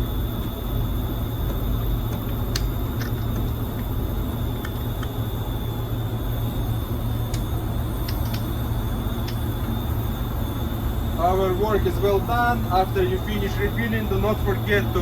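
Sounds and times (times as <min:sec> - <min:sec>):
faint high whine: 0:00.0 - 0:15.0
low machinery hum: 0:00.0 - 0:15.0
light clicks: 0:07.3 - 0:08.5.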